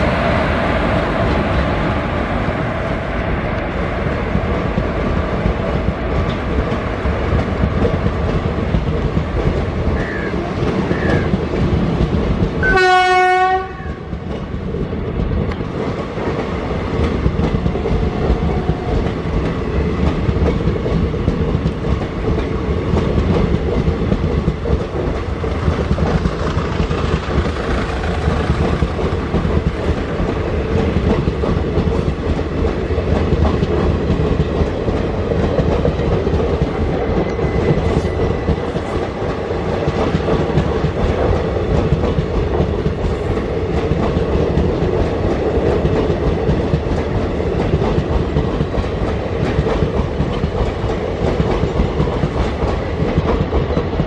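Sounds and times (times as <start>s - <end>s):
train wheels clickety-clack: 0.0s - 54.0s
train horn blast: 12.6s - 14.1s.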